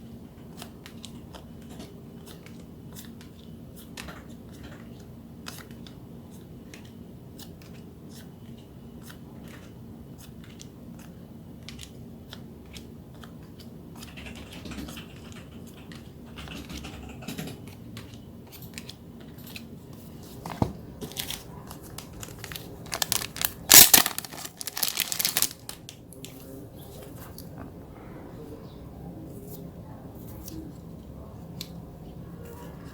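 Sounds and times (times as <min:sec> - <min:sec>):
packaging crinkling and tearing: 0:21.0 - 0:26.0.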